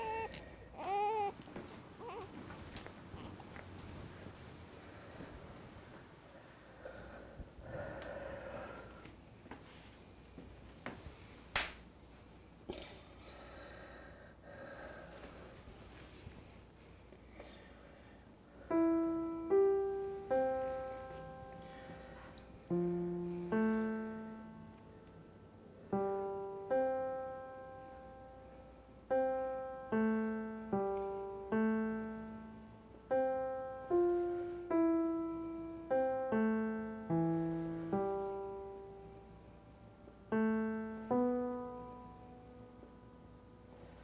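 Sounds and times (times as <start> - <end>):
slow solo piano melody: 18.7 - 44.0.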